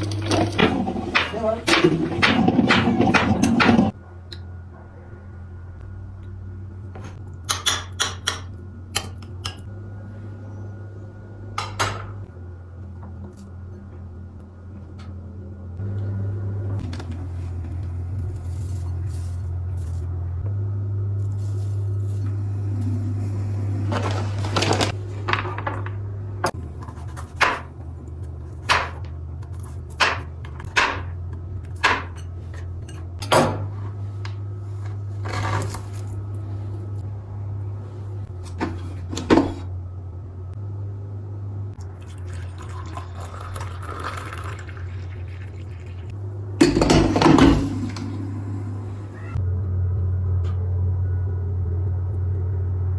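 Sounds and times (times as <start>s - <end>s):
dishes clattering: 0.0s - 3.9s, 46.6s - 48.2s
low hum: 0.0s - 52.9s.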